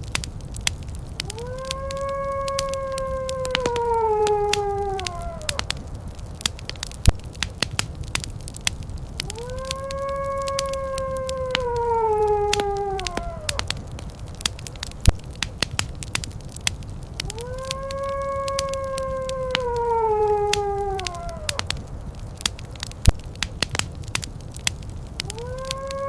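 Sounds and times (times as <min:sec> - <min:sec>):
fireplace crackling: 0:00.0 - 0:26.0
long rising howls: 0:01.2 - 0:06.8, 0:09.0 - 0:15.4, 0:16.6 - 0:22.6, 0:25.1 - 0:26.0.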